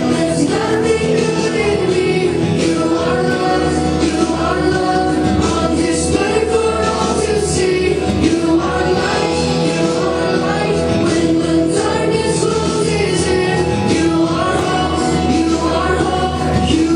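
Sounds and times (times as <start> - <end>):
group of voices singing: 0.0 - 16.9
instrumental backing track: 0.0 - 16.9.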